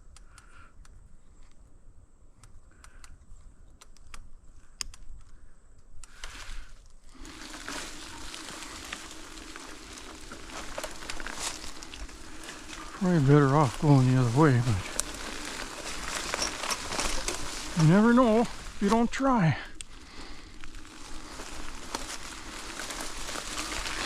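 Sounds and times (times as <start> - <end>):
continuous rustle: 1.1 - 24.0
brush and twigs crackling: 6.1 - 24.0
steady low hum: 7.0 - 24.0.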